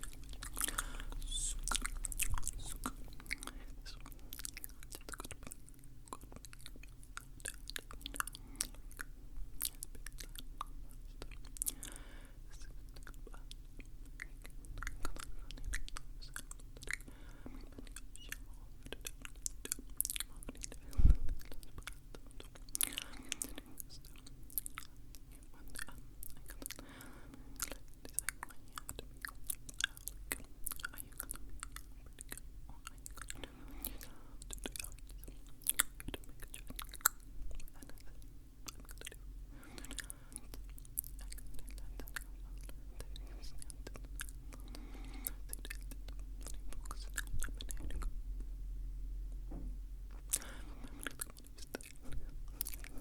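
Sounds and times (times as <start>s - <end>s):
wet mouth clicks and smacks: 0.0s - 11.8s, 27.6s - 39.2s, 50.1s - 53.0s.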